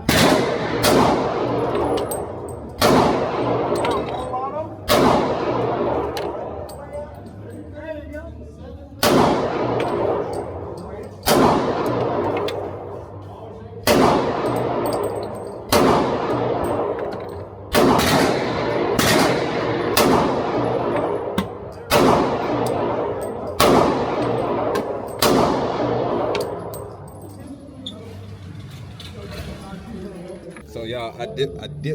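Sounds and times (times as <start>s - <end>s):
pistol shots echoing: 0.0s - 6.7s, 9.0s - 13.2s, 13.8s - 27.4s.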